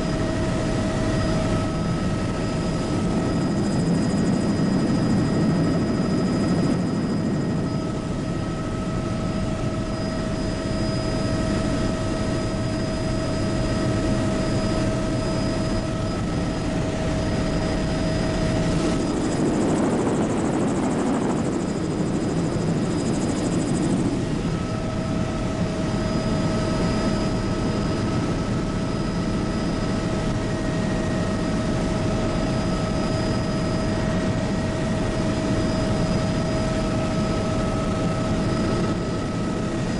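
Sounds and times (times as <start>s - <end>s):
helicopter rotor and engine noise: 0.0s - 39.9s
high turbine whine: 0.0s - 39.9s.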